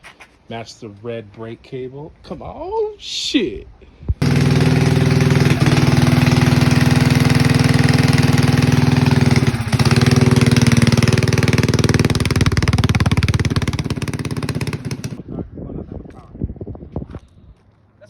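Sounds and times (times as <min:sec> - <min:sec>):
minibike engine running: 0:04.2 - 0:15.2.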